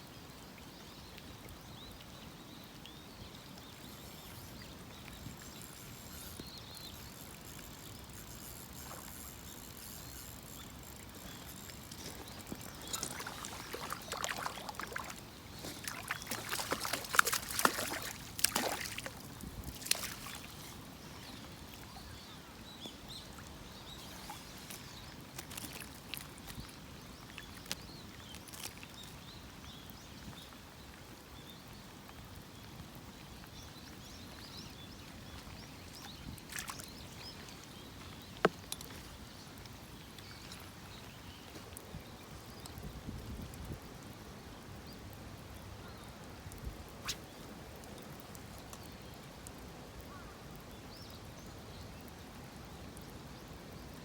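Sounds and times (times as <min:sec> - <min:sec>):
faint steady hiss: 0:00.0 - 0:54.0
irregular splashing and clattering: 0:07.2 - 0:20.7.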